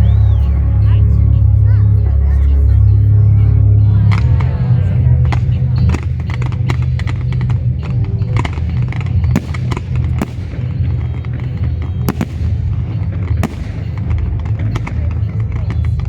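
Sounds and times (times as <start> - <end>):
low rumble: 0.0 - 16.0
fireworks bangs and crackling: 5.3 - 16.0.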